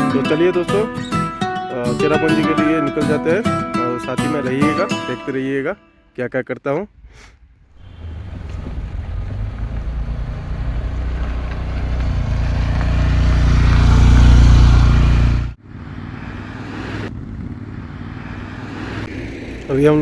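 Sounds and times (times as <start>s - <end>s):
vehicle road and engine rumble: 7.7s - 20.0s.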